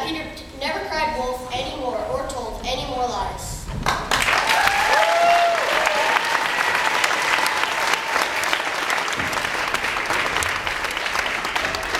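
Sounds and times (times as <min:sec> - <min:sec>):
audience applauding: 0:03.8 - 0:11.9
faint cheer: 0:04.2 - 0:10.7.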